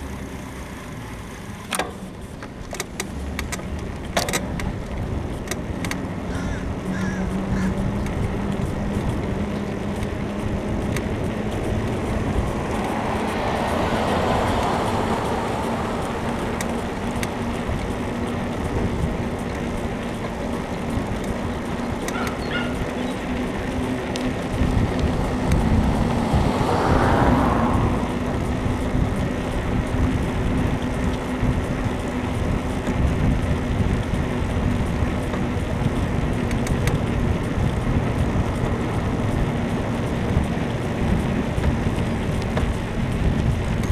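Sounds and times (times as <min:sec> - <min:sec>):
car passing: 0:00.0 - 0:43.9
road noise: 0:00.0 - 0:43.9
wind on microphone: 0:03.6 - 0:43.9.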